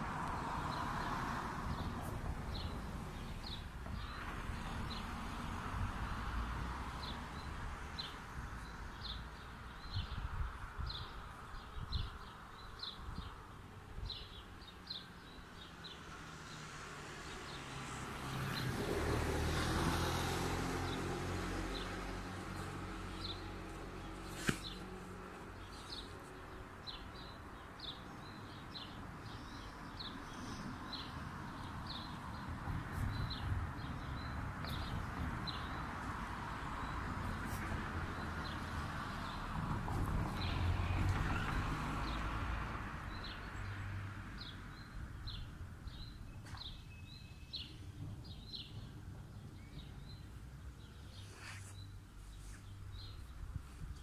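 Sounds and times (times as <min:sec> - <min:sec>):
car passing: 0:15.6 - 0:26.0, 0:30.2 - 0:45.4.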